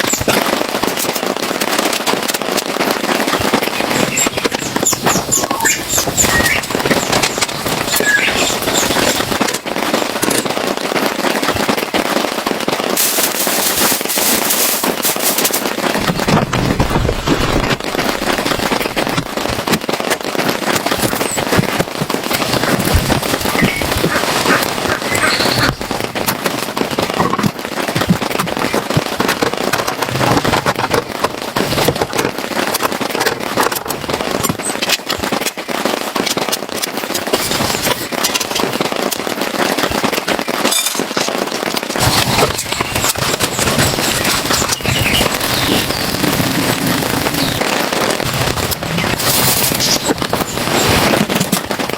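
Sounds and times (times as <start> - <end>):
heavy rain falling: 0.0 - 51.9.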